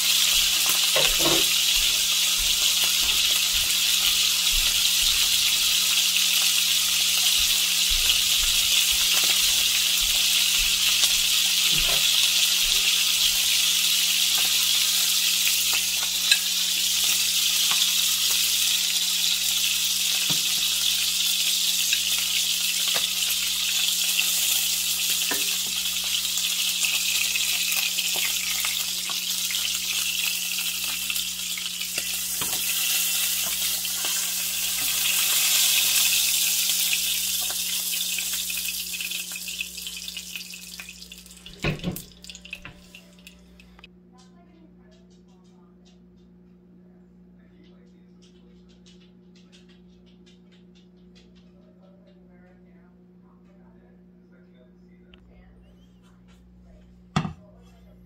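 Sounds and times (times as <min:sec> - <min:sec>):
meat sizzling in a frying pan: 0:00.0 - 0:43.3.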